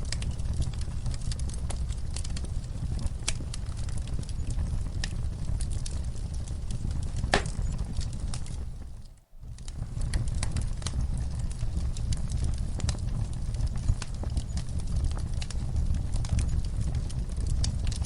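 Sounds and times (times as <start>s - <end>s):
wood fire crackling: 0.0s - 18.0s
loud fire pop: 7.2s - 7.8s.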